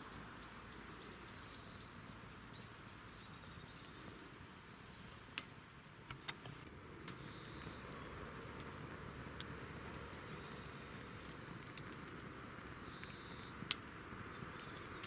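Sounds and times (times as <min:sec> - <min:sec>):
campfire crackling: 0:00.0 - 0:15.0
faint steady hiss: 0:00.0 - 0:15.0
sharp pops of fire: 0:05.3 - 0:15.0.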